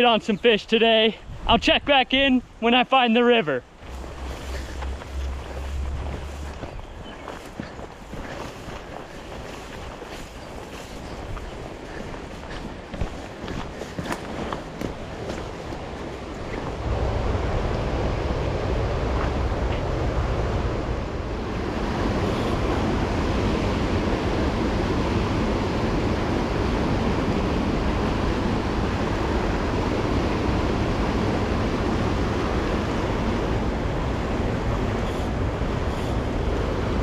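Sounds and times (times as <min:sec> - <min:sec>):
river rushing: 0:02.6 - 0:37.0.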